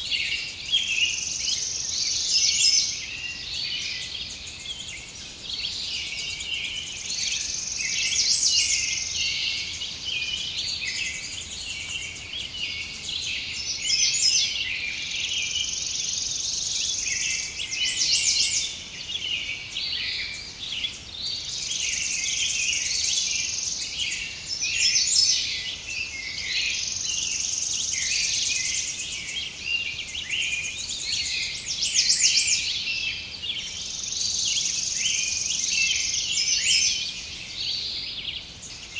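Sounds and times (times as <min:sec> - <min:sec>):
birds chirping and singing: 0:00.0 - 0:38.9.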